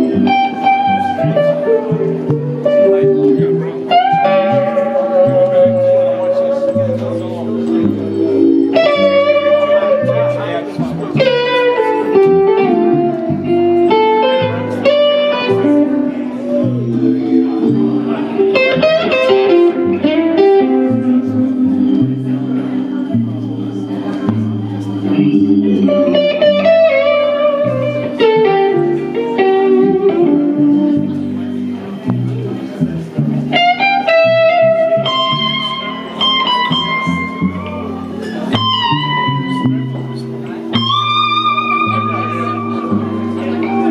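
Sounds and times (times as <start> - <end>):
bass line: 0.0 - 43.9
electric guitar lead: 0.0 - 43.9.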